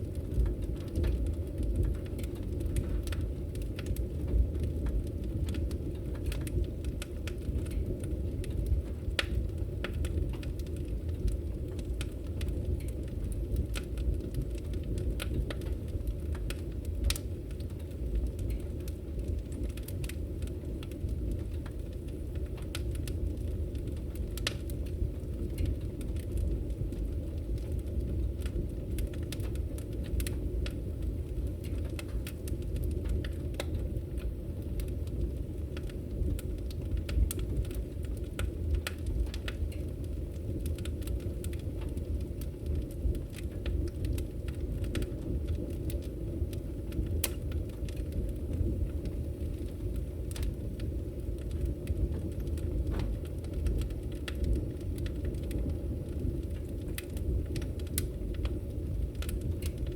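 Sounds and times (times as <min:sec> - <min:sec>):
firewood crackling and popping: 0:00.0 - 0:59.9
rumble of flames: 0:00.0 - 0:59.9.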